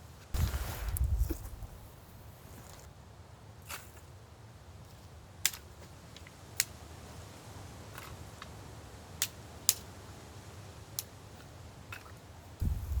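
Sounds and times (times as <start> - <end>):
campfire wood crackling: 0.0 - 4.1, 10.7 - 13.0
low wind rumble: 0.3 - 2.7, 12.6 - 13.0.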